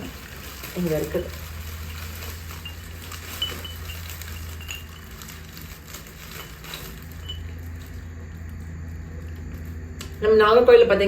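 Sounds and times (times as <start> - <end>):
clay wind chime clinking: 2.4 - 5.4.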